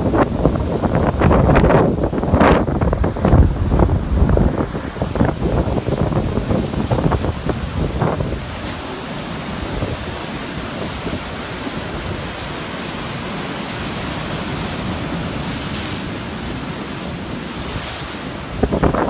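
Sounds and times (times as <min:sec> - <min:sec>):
wind buffeting microphone: 0:00.0 - 0:12.7, 0:13.5 - 0:19.0.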